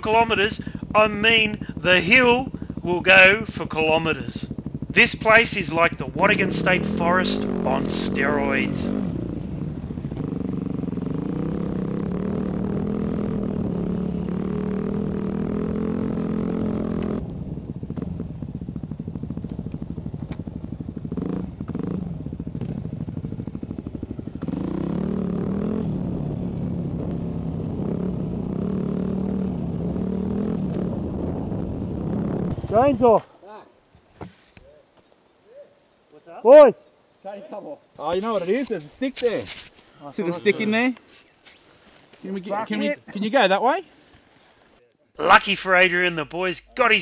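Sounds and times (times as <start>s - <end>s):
dirt bike engine running: 0.0s - 33.2s.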